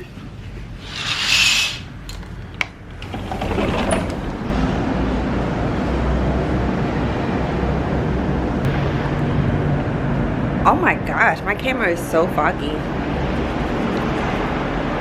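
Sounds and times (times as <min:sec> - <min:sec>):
outdoor noise with low rumble: 0:00.0 - 0:15.0
sliding door opening: 0:00.7 - 0:04.5.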